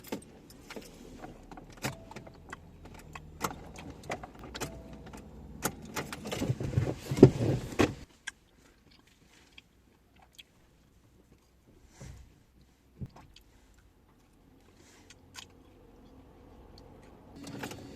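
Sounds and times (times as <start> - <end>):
eating crunches and clicks: 13.1 - 17.2.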